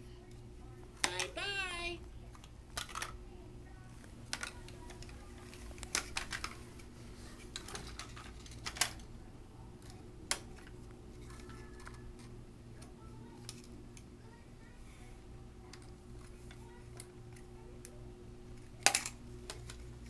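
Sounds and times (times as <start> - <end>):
low steady hum: 0.0 - 20.0
clicks of small hard toys: 2.3 - 3.2, 4.3 - 6.6, 7.5 - 9.1, 9.8 - 14.1, 18.8 - 19.8.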